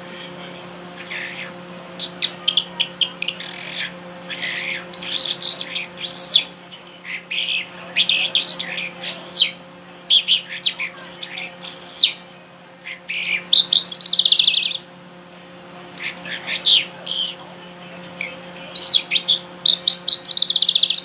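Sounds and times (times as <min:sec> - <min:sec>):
songbird chirping and warbling: 0:00.0 - 0:14.9, 0:15.9 - 0:21.0
fast falling bird trill: 0:13.0 - 0:14.9.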